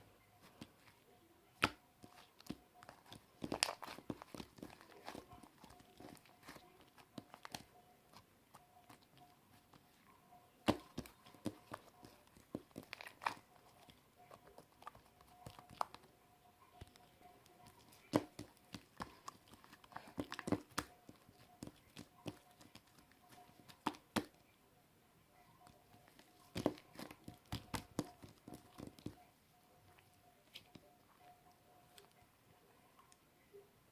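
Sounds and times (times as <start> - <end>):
slime squished by hand: 1.6 - 8.2, 10.6 - 16.1.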